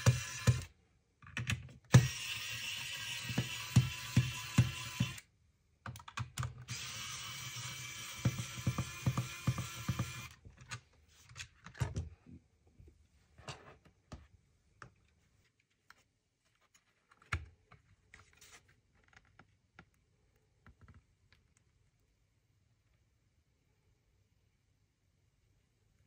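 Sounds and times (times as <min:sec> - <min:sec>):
small motor whirring: 0:01.9 - 0:05.2, 0:06.7 - 0:10.4.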